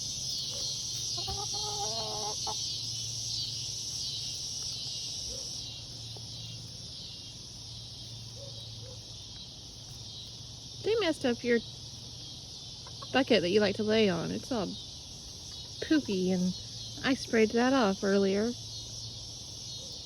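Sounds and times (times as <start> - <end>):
hen calling: 0.0 - 2.6
hen clucking: 0.0 - 3.1, 12.8 - 13.2
insects chirring: 0.0 - 20.0.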